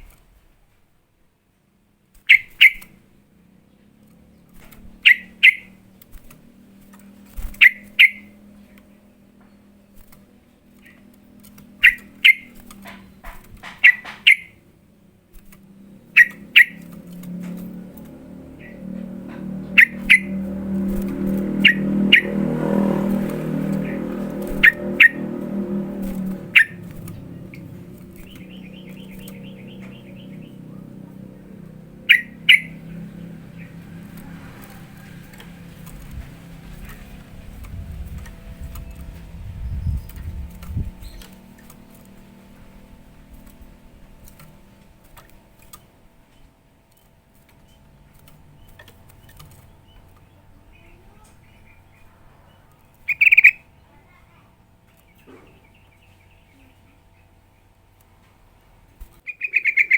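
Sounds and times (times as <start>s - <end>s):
bird calling and chattering: 2.2s - 3.0s, 4.3s - 14.7s, 15.4s - 58.0s, 59.2s - 59.9s
low steady hum: 2.4s - 59.9s
soft clicks: 15.3s - 21.6s.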